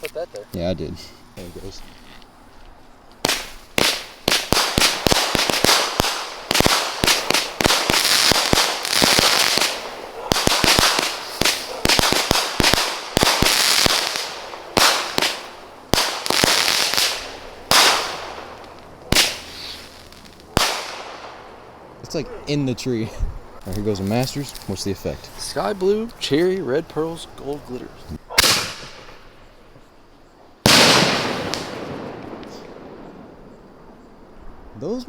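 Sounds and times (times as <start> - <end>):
hissing crackling firework bursts: 3.2 - 21.4, 30.6 - 33.2
firework bangs: 3.2 - 22.1, 28.2 - 29.5, 30.6 - 34.0.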